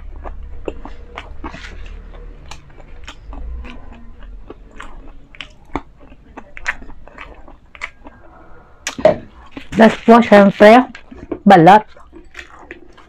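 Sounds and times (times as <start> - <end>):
wet mouth clicks: 0.0 - 9.7
chewing crispy chicken crunches: 0.0 - 10.1, 10.9 - 13.0.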